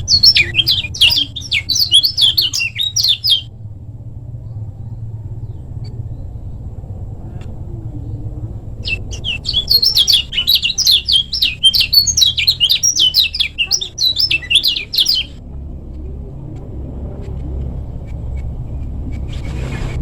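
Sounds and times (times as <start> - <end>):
bird singing chattering song: 0.0 - 3.5, 8.0 - 15.4
steady low rumble: 0.0 - 20.0.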